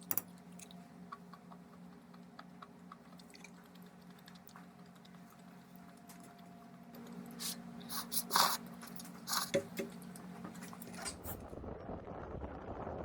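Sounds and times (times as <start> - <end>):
low rumbling noise: 11.2 - 13.0.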